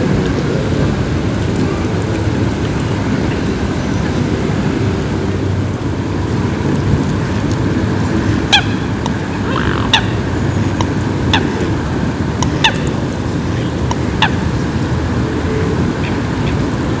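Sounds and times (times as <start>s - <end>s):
steady rain on water: 0.0s - 9.3s, 10.3s - 17.0s
water bird honking: 8.5s - 10.5s.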